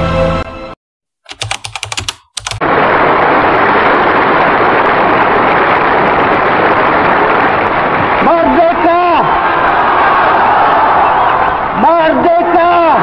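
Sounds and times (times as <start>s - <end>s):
music: 0.0s - 0.8s
crowd roaring: 2.6s - 13.0s.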